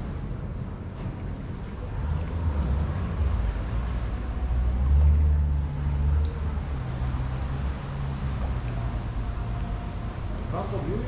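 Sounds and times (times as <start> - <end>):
motorboat engine humming: 0.0 - 11.0.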